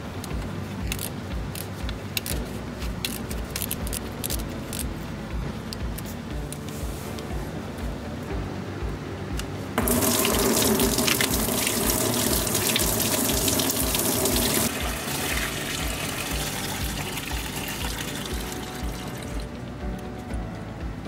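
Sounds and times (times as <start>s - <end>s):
coolant gushing from a hose: 9.8s - 19.5s.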